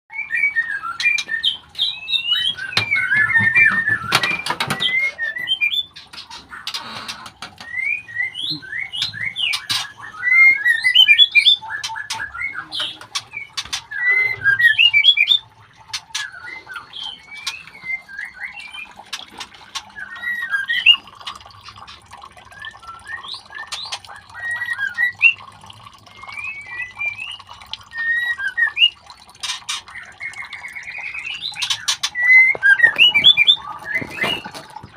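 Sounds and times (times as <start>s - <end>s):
bird chicks squawking chirps: 29.4s - 34.9s.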